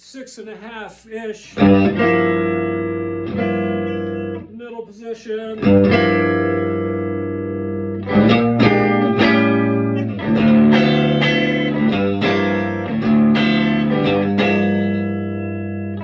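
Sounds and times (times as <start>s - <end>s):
electric guitar chords: 1.6s - 4.5s, 5.6s - 16.0s.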